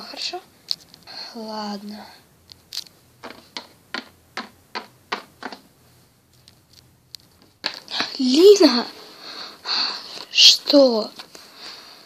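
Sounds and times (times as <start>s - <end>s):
faint taps: 2.4s - 5.7s
quick light footsteps: 2.4s - 8.2s.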